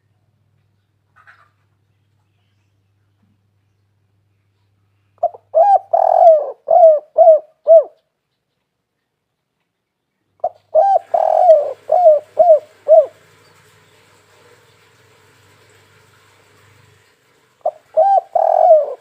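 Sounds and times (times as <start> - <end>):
dove cooing: 5.2 - 8.0, 10.4 - 14.3, 17.6 - 19.0.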